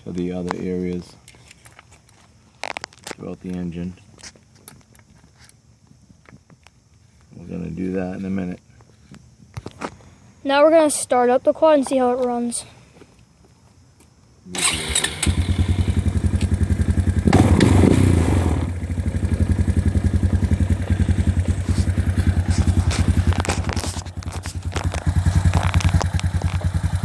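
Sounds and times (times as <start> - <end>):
quad engine starting and idling: 14.5 - 27.0.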